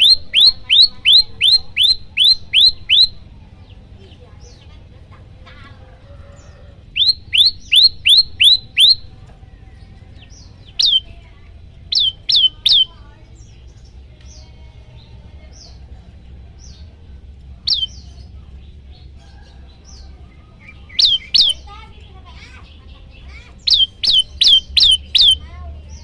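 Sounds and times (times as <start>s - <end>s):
bird whistling sharp downward notes: 0.0s - 3.2s, 6.9s - 9.0s, 10.8s - 11.1s, 11.9s - 12.9s, 21.0s - 21.6s, 23.7s - 25.4s
faint bird chirps: 0.0s - 4.7s, 6.2s - 9.2s, 10.0s - 15.9s, 17.7s - 18.4s, 19.0s - 26.0s.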